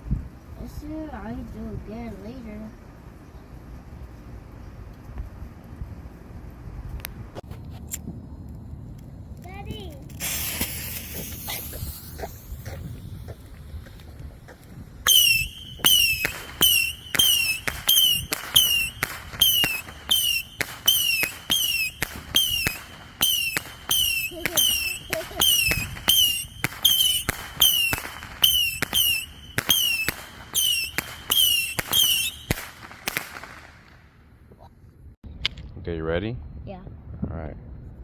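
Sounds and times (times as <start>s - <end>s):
firework whistling pops: 10.1s - 34.1s.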